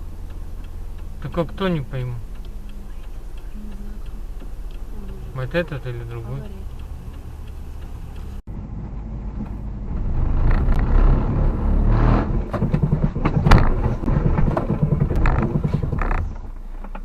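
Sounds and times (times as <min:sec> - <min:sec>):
road and engine rumble: 0:00.0 - 0:17.0.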